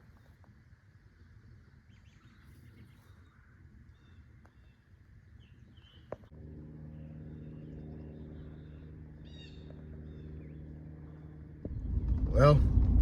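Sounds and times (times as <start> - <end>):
small birds chirping: 1.8 - 11.6
low engine hum: 6.3 - 13.0.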